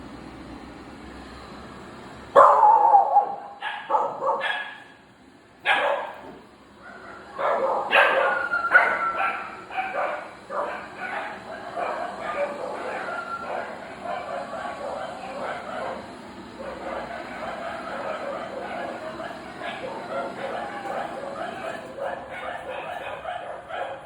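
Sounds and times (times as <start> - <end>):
dog barking: 2.4 - 5.0, 5.6 - 24.0.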